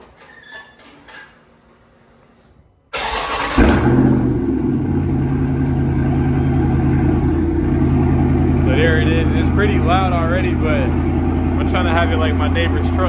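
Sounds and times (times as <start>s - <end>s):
car engine cranking and starting: 2.9s - 13.0s
car engine idling: 3.0s - 13.0s.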